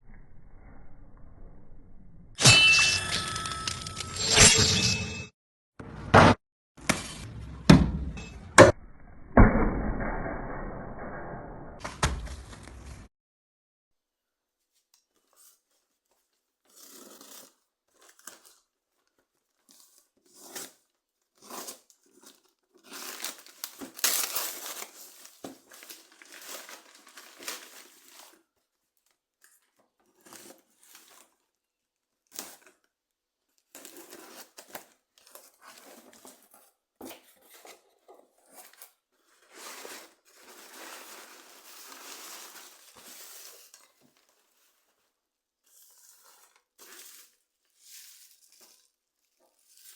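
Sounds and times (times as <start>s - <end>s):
packaging tearing and crinkling: 21.4s - 28.4s, 39.5s - 44.3s.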